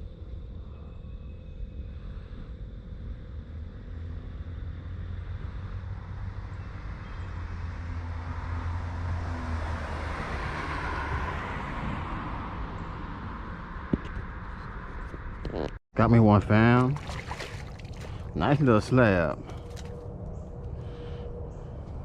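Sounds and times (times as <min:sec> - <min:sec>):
road vehicle passing: 0:03.2 - 0:15.6.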